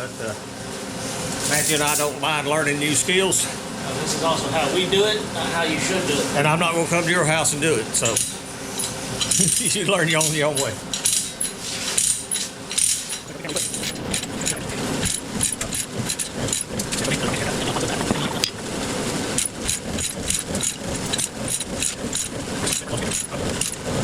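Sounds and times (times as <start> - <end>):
chain clinking and rattling: 1.4 - 2.1, 10.9 - 17.2, 19.4 - 23.8
diesel engine running: 13.2 - 24.0.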